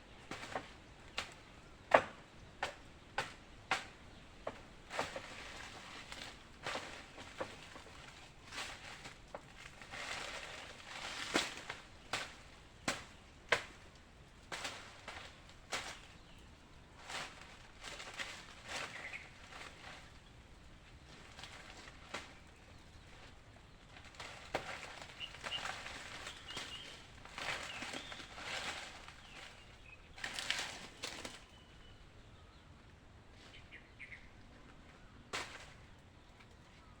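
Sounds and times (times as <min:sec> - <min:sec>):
faint rustling and scuffing: 0:14.6 - 0:32.0.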